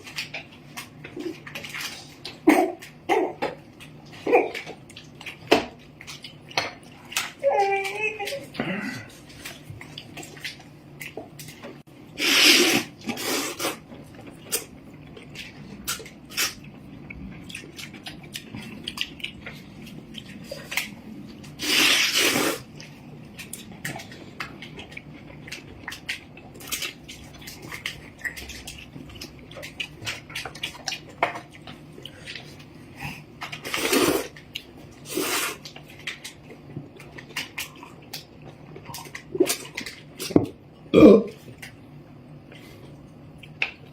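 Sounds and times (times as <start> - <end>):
noodles slurped: 12.2 - 13.9, 17.3 - 24.8, 32.0 - 36.2
chewing clicks: 14.2 - 21.6.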